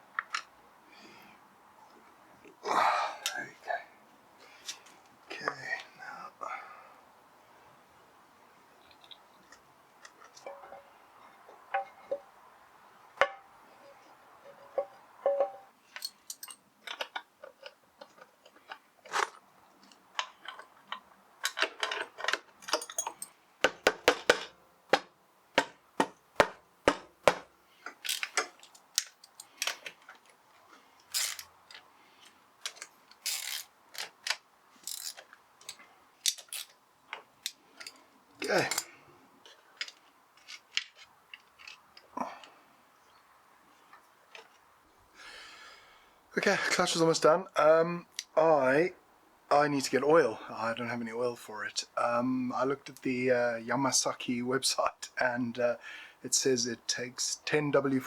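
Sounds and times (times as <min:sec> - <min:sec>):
metal tools clinking and tapping: 0:08.8 - 0:10.9, 0:11.5 - 0:12.3, 0:13.2 - 0:18.8, 0:20.2 - 0:23.4, 0:37.4 - 0:39.0.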